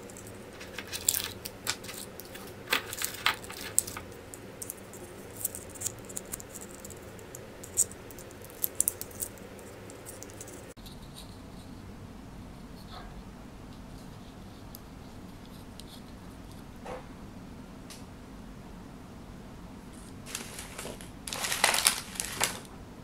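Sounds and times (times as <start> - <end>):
wrapper crinkling: 0.0 - 10.8, 20.3 - 22.7.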